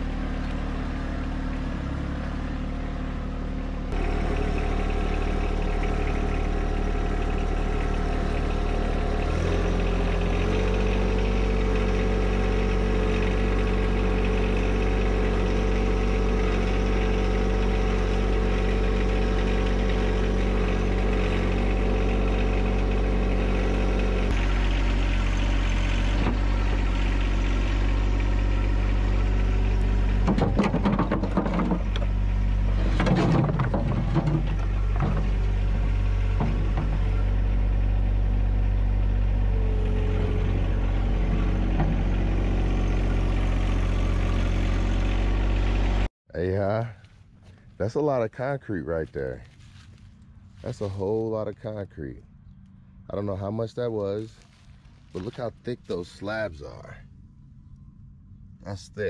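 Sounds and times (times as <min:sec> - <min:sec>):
tractor diesel engine running: 0:00.0 - 0:59.0
rough irregular noise: 0:46.4 - 0:51.9, 0:53.2 - 0:57.0.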